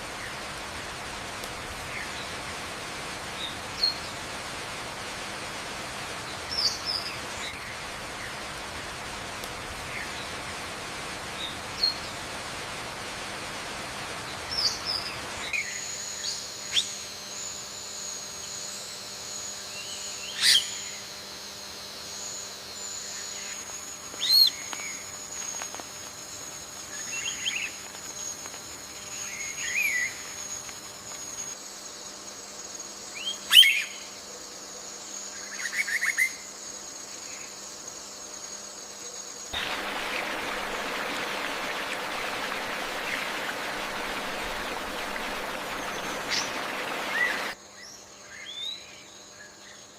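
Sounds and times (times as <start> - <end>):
steady hiss: 0.0 - 47.6
high-pitched insect drone: 14.6 - 49.9.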